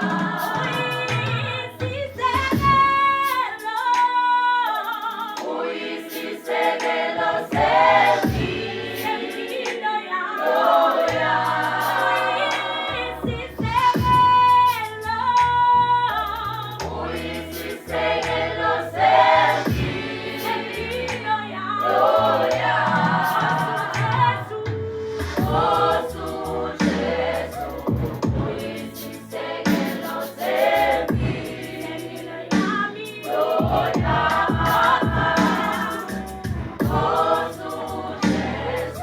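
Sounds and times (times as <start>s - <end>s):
gospel choir singing in harmony: 0.0s - 39.0s.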